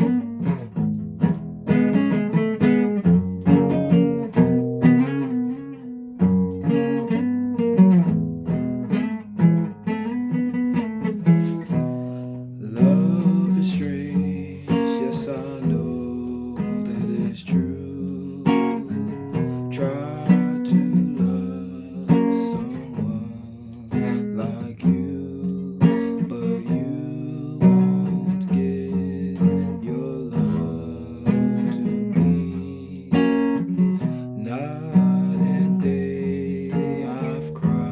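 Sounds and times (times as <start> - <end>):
guitar strumming and picking: 0.0 - 37.9.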